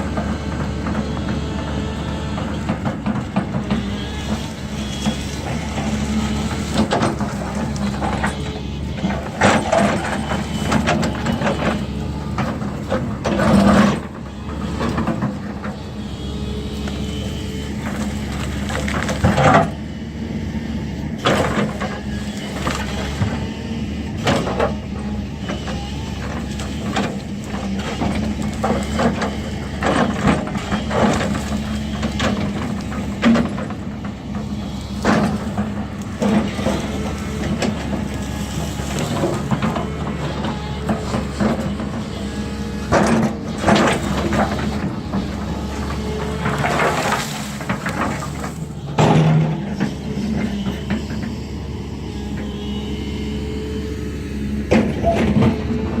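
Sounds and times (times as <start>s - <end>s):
heavy machinery diesel engine: 0.0s - 56.0s
metallic clanks and knocks: 46.4s - 50.0s.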